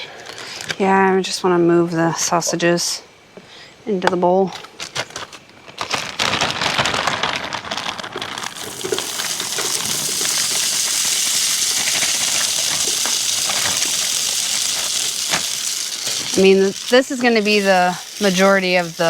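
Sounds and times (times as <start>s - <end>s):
potatoes sizzling on griddle: 8.4s - 19.0s.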